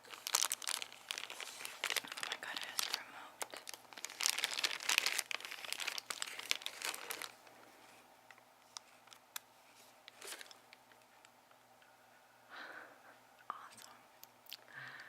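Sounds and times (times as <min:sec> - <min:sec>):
plastic wrapper crackling: 0:00.0 - 0:07.5.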